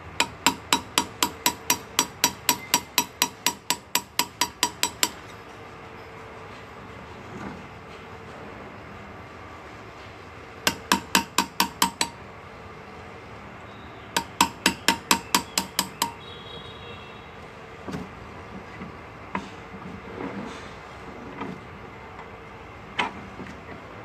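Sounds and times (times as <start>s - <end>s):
hammer tapping graver into metal: 0.1s - 5.2s, 10.7s - 12.2s, 14.2s - 16.2s.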